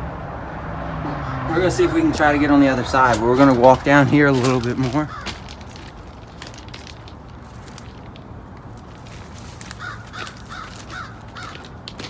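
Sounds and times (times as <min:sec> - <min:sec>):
crow cawing: 0:00.8 - 0:02.7, 0:05.0 - 0:05.5, 0:09.7 - 0:11.8.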